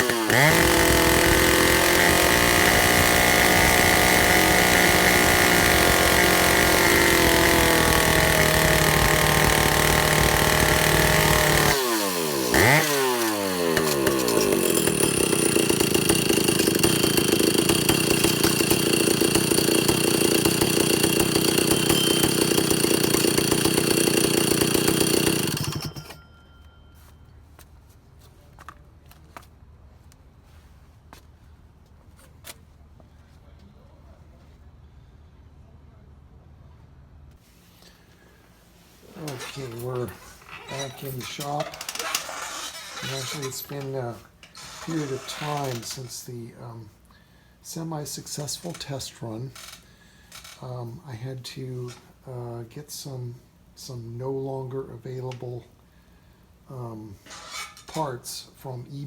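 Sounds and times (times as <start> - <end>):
chainsaw engine revving: 0.0 - 26.2, 39.1 - 46.3.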